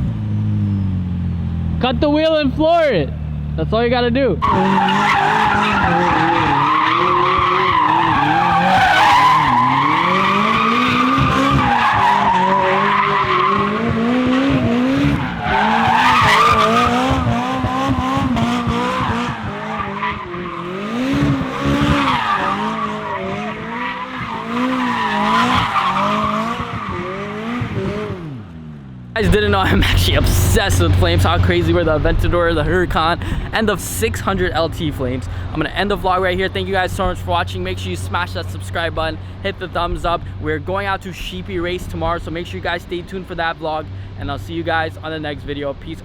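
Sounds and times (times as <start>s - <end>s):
car engine at high revs: 0.0s - 40.6s
tyres squealing: 4.4s - 27.1s.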